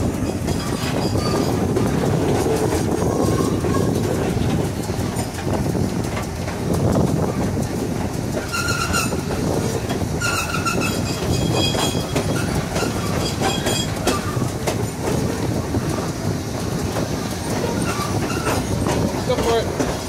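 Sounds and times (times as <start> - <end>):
train wheels rumbling on rails: 0.0 - 20.0
high-pitched wheel squeals: 0.2 - 1.7, 8.4 - 9.3, 10.2 - 14.5, 17.6 - 18.8.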